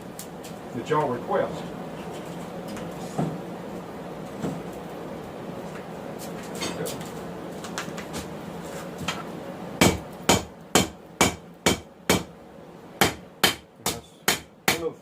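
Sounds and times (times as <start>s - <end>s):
hammer striking steel on anvil: 9.8s - 12.3s.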